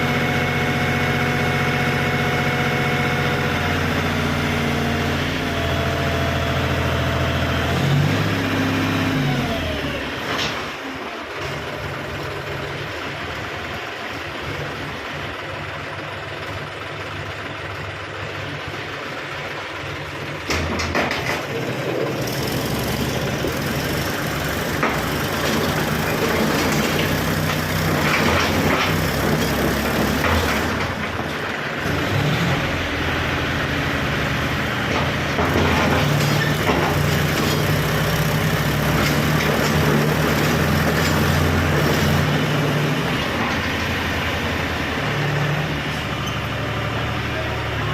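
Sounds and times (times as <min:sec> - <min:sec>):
tractor engine running: 0:00.0 - 0:47.9
knocks and clatter: 0:20.4 - 0:22.3, 0:24.6 - 0:31.5, 0:34.8 - 0:42.3, 0:43.2 - 0:44.2.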